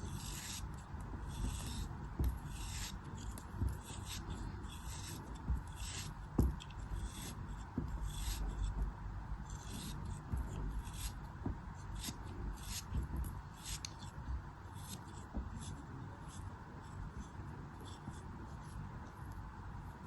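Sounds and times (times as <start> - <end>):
tool scraping crumbly material: 0.0 - 14.2.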